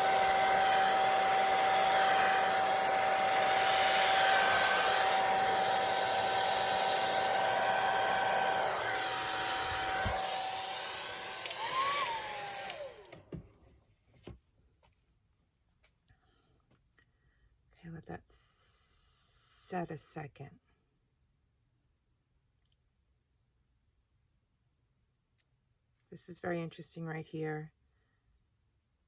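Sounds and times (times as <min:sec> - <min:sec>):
motor winding down: 0:00.0 - 0:13.2
hair dryer blowing: 0:00.0 - 0:13.4.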